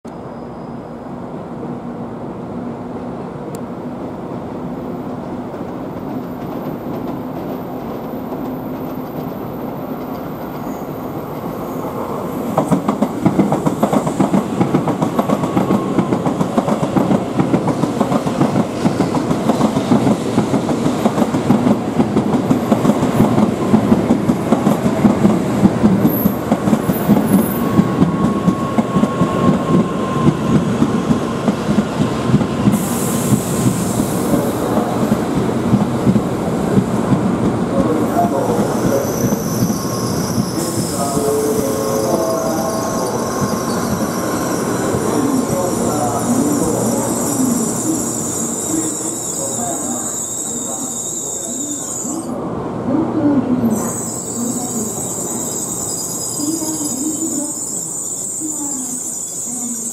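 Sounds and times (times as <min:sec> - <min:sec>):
train rumble: 0:01.1 - 0:57.6
rapid clatter of train wheels: 0:05.5 - 0:10.8, 0:12.4 - 0:41.8.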